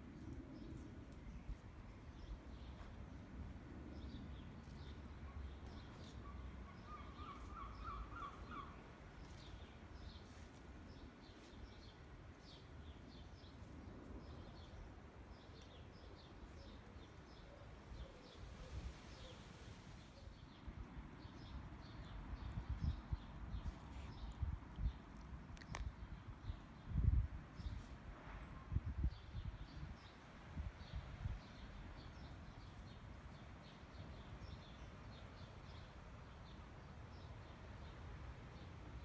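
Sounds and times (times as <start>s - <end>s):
birds chirping: 3.9s - 25.0s.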